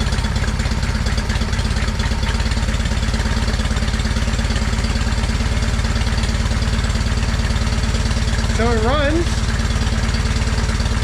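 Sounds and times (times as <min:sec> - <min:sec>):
garden tractor engine idling: 0:00.0 - 0:11.0.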